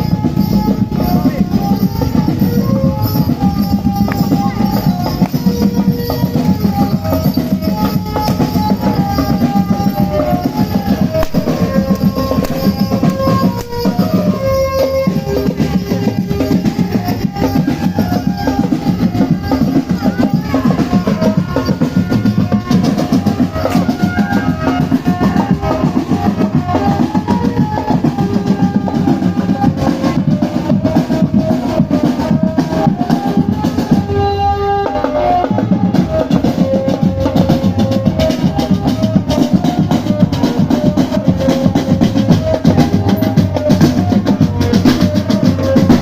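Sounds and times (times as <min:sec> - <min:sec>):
melody of held notes: 0:00.0 - 0:30.2
marching drum band drumming: 0:00.0 - 0:34.0, 0:35.4 - 0:46.0.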